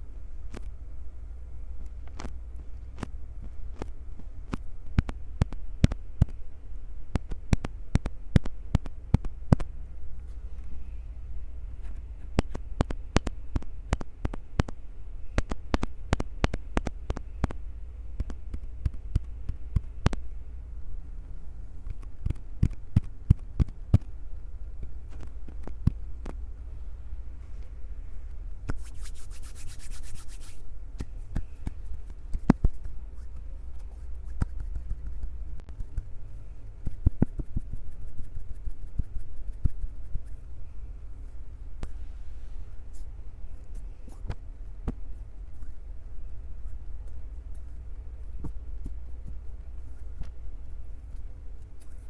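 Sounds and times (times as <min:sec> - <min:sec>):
sharp clicks and taps: 0:03.0 - 0:06.4, 0:07.1 - 0:09.7, 0:11.8 - 0:17.6, 0:18.2 - 0:20.4, 0:21.8 - 0:24.2.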